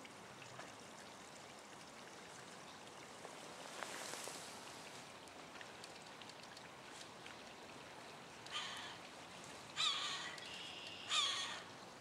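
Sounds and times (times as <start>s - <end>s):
bird giving harsh calls: 9.8s - 11.6s.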